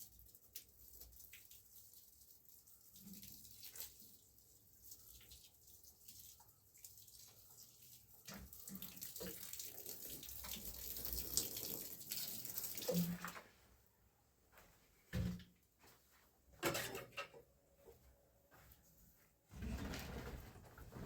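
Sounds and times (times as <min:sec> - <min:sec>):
water running: 0:00.0 - 0:13.6.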